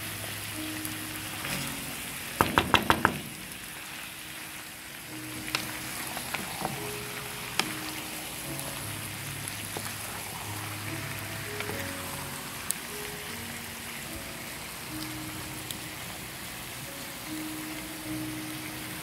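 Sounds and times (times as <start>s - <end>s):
meat sizzling in a frying pan: 0.0s - 19.0s
soft background music: 0.0s - 19.0s
wooden spatula stirring: 5.3s - 13.8s.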